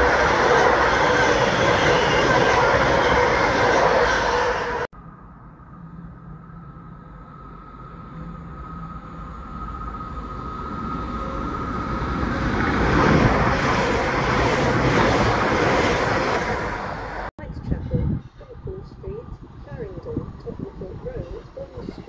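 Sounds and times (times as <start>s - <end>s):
train rushing rumble: 0.0s - 4.9s, 6.2s - 22.0s
electric train high whine: 0.0s - 17.3s.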